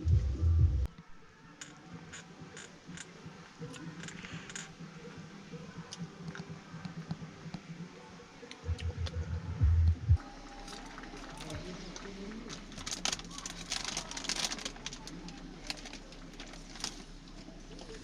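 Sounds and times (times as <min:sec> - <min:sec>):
loud low sound: 0:00.0 - 0:00.9, 0:08.6 - 0:10.4
music with heavy low beat: 0:00.0 - 0:00.9, 0:08.6 - 0:10.2
faint low hum: 0:00.0 - 0:18.0.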